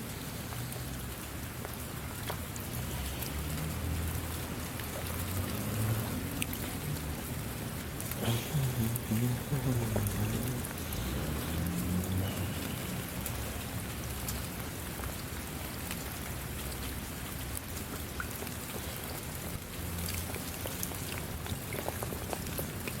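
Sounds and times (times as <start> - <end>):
rain falling: 0.0 - 23.0
raindrops ticking on a surface: 0.0 - 23.0.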